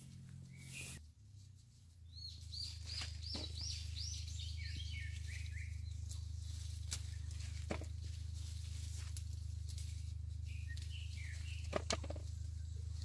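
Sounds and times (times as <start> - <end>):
steady low hum: 0.0 - 13.0
bird whistling: 0.5 - 1.0.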